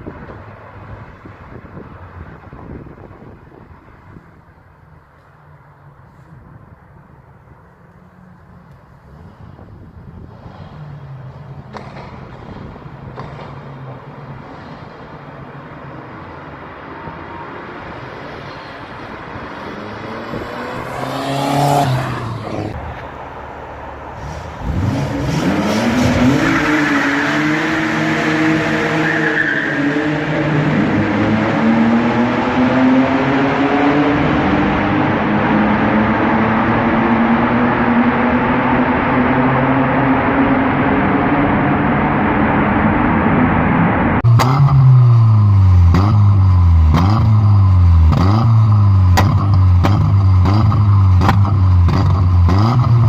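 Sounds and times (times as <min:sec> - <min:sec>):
car engine revving: 0:19.1 - 0:23.0, 0:24.2 - 0:53.0.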